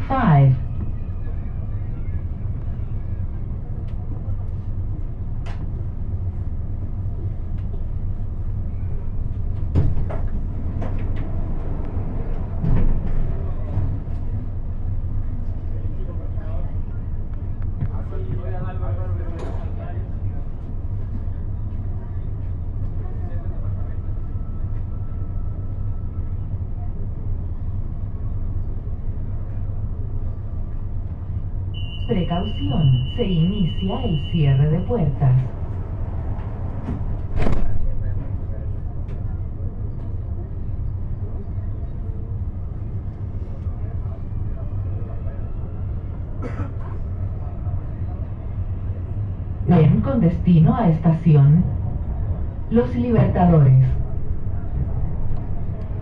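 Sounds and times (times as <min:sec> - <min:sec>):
low hum of stationary train: 0:00.0 - 0:56.0
faint whine: 0:31.6 - 0:35.8.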